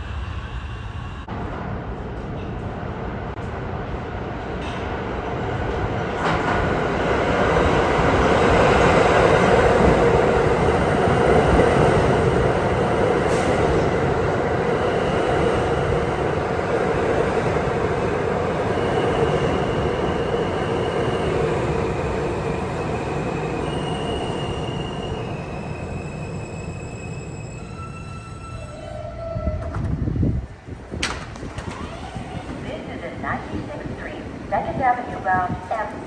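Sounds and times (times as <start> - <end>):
subway train rumbling: 0.0 - 36.0
train wheels squealing: 22.7 - 29.6.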